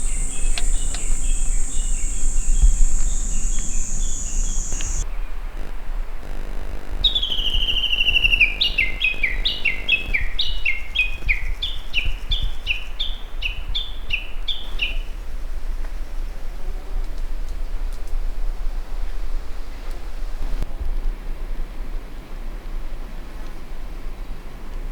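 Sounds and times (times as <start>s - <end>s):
songbird trilling and calling: 0.0s - 5.0s, 7.0s - 15.1s.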